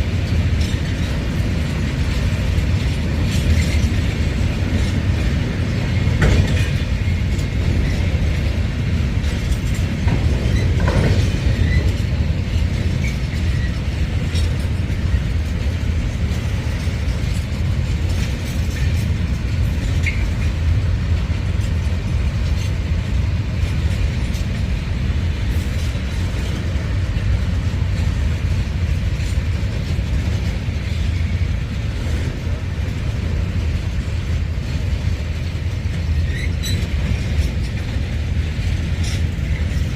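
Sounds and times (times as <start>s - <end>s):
rail clicks: 0.0s - 39.9s
train rumbling on rails: 0.0s - 39.9s.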